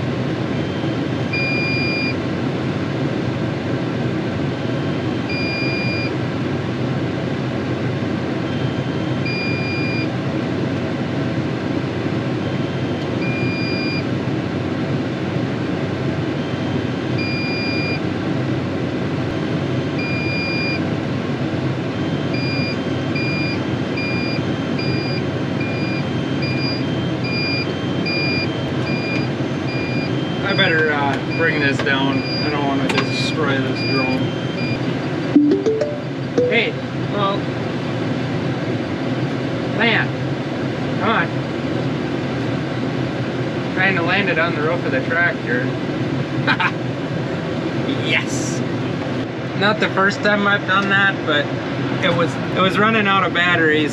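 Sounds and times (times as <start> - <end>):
high electronic beep: 5.3 - 6.1, 33.8 - 36.9.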